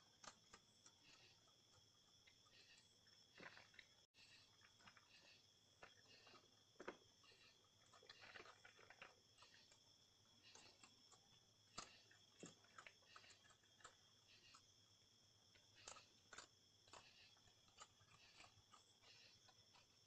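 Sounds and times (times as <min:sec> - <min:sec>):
animal crunching dry pet food: 0:00.0 - 0:20.0.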